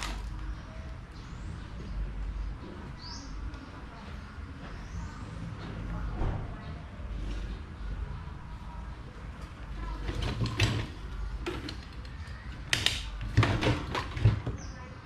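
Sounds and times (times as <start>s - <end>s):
hard parts knocking and scraping: 9.8s - 14.8s.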